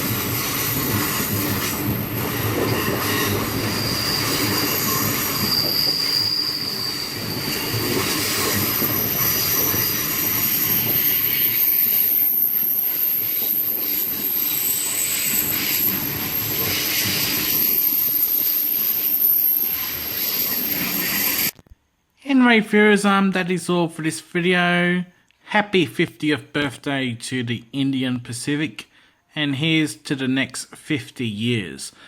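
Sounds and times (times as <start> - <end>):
high-pitched wheel squeal: 0.0 - 21.5
train wheels rumbling on rails: 0.0 - 21.6.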